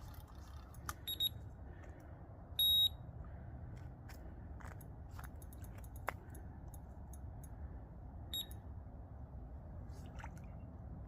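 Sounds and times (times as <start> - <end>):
low steady rumble: 0.0 - 11.0
bite alarm beep: 1.1 - 1.4, 2.6 - 3.0, 8.3 - 8.6.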